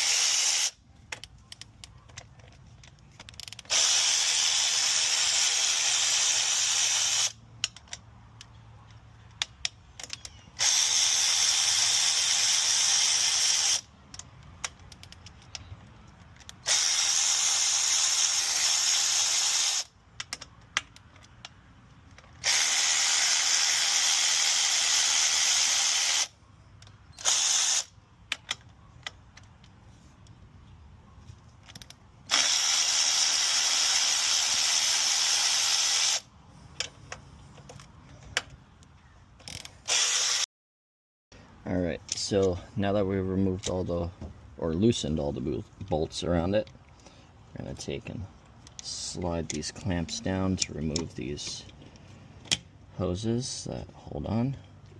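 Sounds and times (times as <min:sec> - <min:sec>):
power ratchet spinning bolts: 0:00.0 - 0:01.2, 0:03.2 - 0:08.0, 0:10.0 - 0:13.9, 0:16.4 - 0:20.5, 0:22.2 - 0:26.3, 0:27.1 - 0:27.9, 0:31.7 - 0:36.2, 0:39.4 - 0:40.4
socket and bolts clicking: 0:20.1 - 0:22.4, 0:28.2 - 0:30.3.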